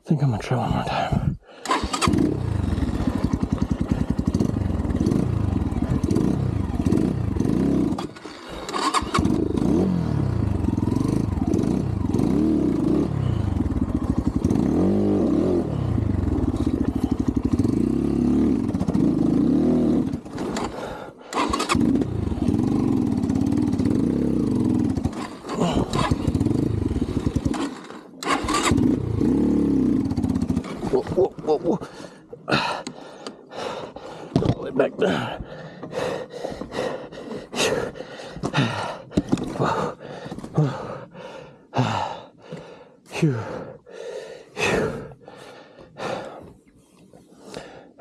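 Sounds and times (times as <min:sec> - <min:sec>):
dirt bike engine revving: 0:01.6 - 0:31.9.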